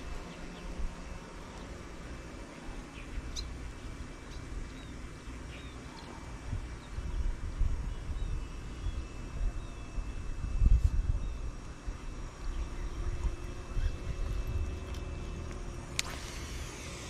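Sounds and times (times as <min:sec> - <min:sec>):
small birds chirping: 0:02.7 - 0:10.2.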